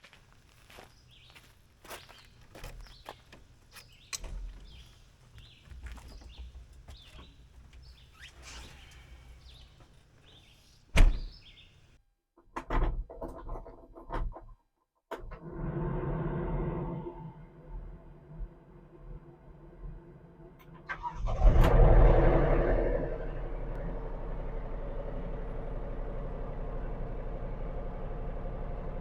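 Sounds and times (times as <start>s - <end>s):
low outdoor rumble: 0.0s - 12.0s, 15.9s - 29.0s
small birds chirping: 0.0s - 12.0s
loud thump: 11.0s - 11.4s.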